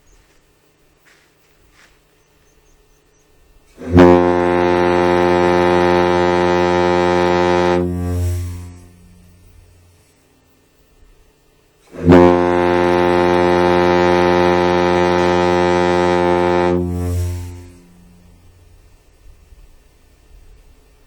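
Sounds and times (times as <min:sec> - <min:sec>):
deep ship's horn blast: 0:03.7 - 0:10.1, 0:11.8 - 0:19.4.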